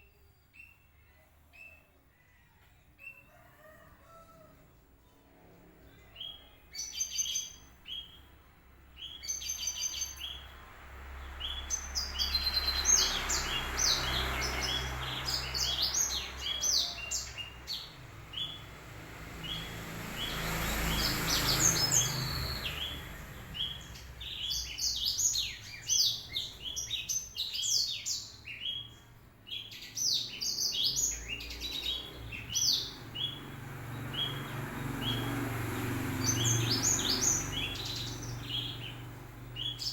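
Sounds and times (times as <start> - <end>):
bird singing high chirps and trills: 0.0 - 2.4, 5.8 - 18.7, 19.4 - 35.4, 36.0 - 39.9.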